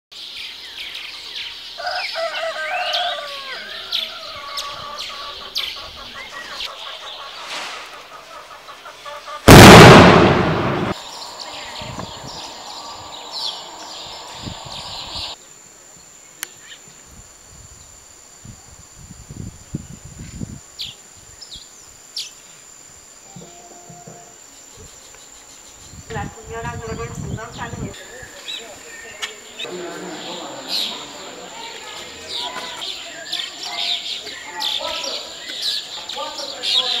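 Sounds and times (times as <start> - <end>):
birds chirping and chattering: 0.2 - 9.7, 27.4 - 37.0
hiss: 7.4 - 8.2
loud burst of noise: 9.5 - 11.0.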